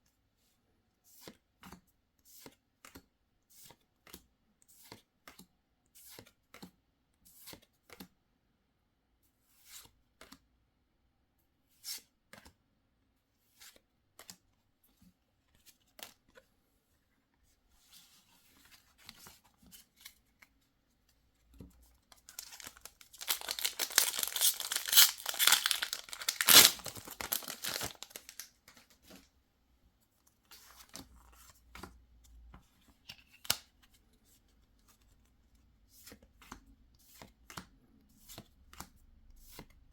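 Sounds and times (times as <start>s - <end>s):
cards and packaging clicking: 22.1s - 28.5s
wrapper tearing open: 22.3s - 28.5s.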